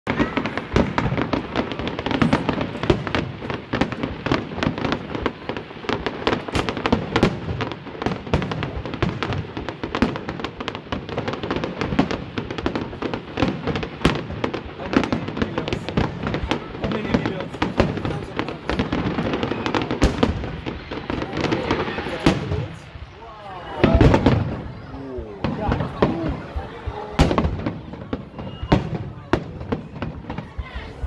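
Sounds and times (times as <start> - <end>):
fireworks bangs and crackles: 0.0 - 31.0.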